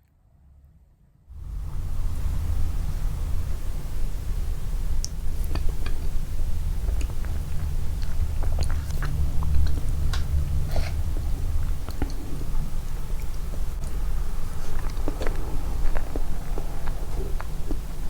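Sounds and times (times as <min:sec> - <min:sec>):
low rumble: 0:01.3 - 0:18.0
close chewing and mouth sounds: 0:04.9 - 0:18.0.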